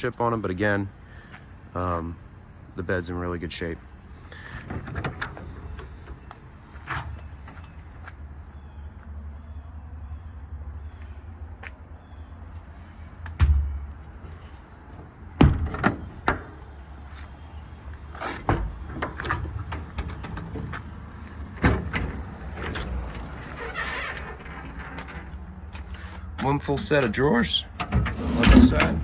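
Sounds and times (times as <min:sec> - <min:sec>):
metal door clanks and knocks: 0:15.4 - 0:16.6, 0:21.5 - 0:25.4, 0:26.8 - 0:29.0.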